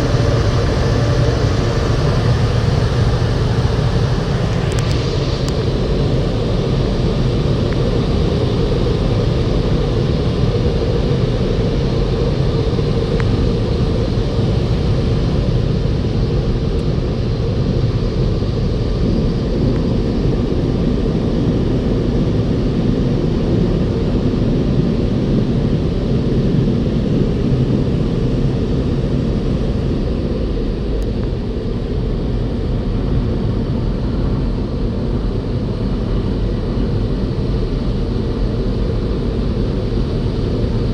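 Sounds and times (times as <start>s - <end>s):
car wash machinery rumbling: 0.0s - 15.8s.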